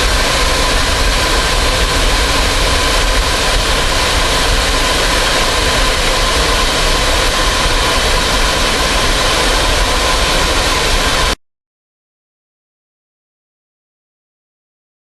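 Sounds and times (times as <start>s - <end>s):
fighter jet engine roaring: 0.0s - 11.4s
jet engine whine: 0.0s - 11.4s.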